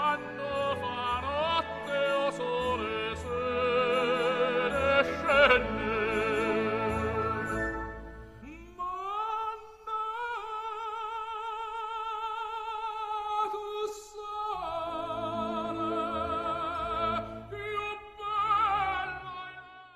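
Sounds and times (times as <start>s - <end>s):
operatic voice singing: 0.0s - 7.8s, 8.4s - 19.9s
instrumental accompaniment: 0.0s - 8.8s.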